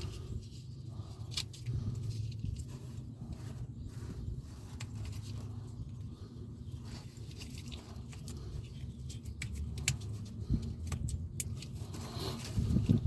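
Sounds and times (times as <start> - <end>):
small parts clicking: 7.1 - 13.0.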